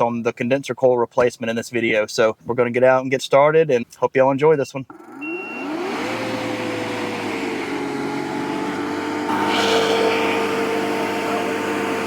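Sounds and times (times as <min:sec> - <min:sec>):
motor and compressor humming: 0:04.9 - 0:12.0
refrigerant flow hissing: 0:07.7 - 0:12.0.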